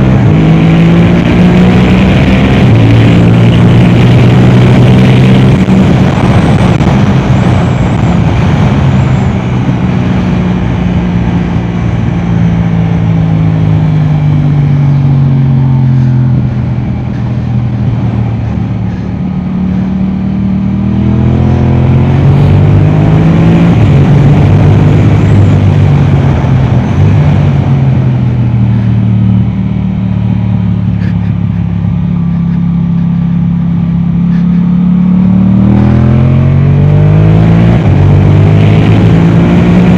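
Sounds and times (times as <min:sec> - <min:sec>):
motorcycle engine at speed: 0:00.0 - 0:39.9.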